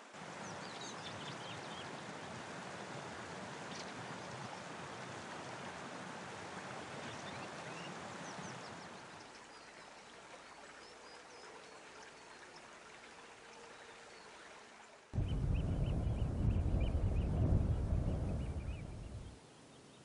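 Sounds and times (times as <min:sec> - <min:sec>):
running water rushing: 0:00.0 - 0:19.4.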